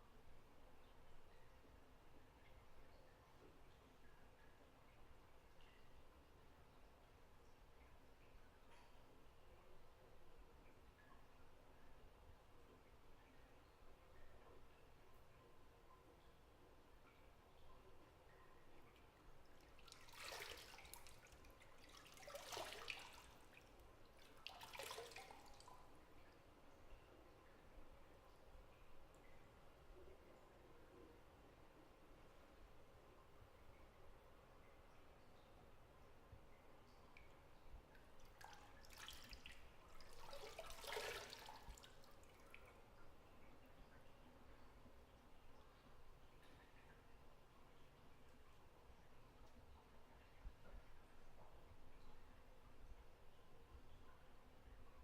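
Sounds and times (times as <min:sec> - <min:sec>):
water drips and plinks: 0:00.1 - 0:31.4, 0:32.2 - 0:55.0
bathwater trickling: 0:00.2 - 0:55.0
water swish: 0:18.8 - 0:27.0, 0:37.2 - 0:44.2.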